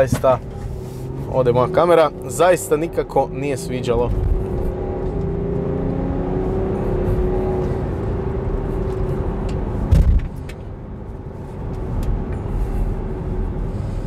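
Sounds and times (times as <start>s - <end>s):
diesel car engine running: 0.0s - 14.0s
low road rumble: 0.0s - 14.0s
heavy thump: 9.9s - 10.3s.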